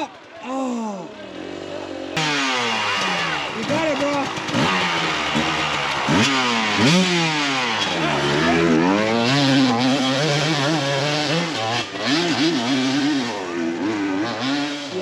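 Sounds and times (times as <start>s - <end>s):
dirt bike engine revving: 1.2s - 15.0s.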